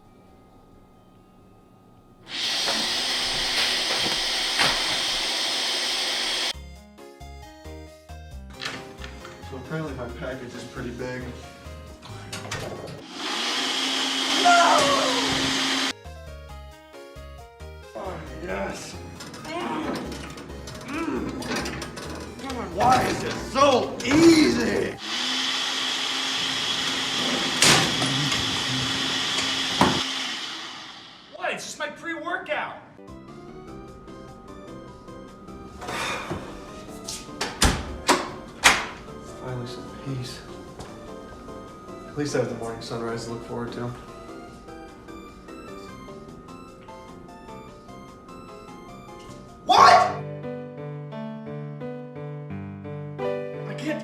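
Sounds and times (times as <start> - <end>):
blender motor running: 2.3 - 6.5, 13.0 - 15.9, 25.0 - 31.3.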